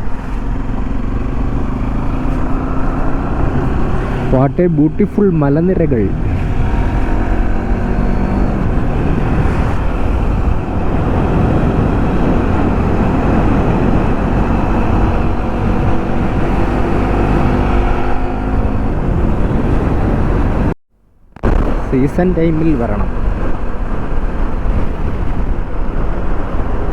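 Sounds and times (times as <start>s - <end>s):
motorcycle engine hum: 0.0s - 20.8s, 21.4s - 26.9s
wind and road noise: 0.0s - 26.9s.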